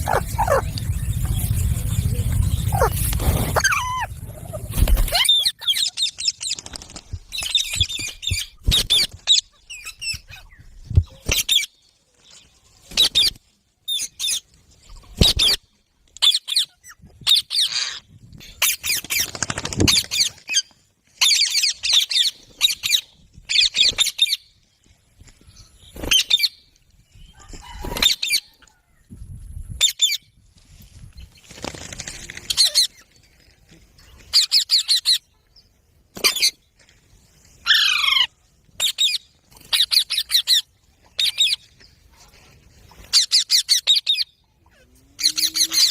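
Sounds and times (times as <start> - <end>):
parakeets shrill calls: 0.0 - 6.6, 34.3 - 35.2, 37.6 - 41.6, 43.1 - 44.2.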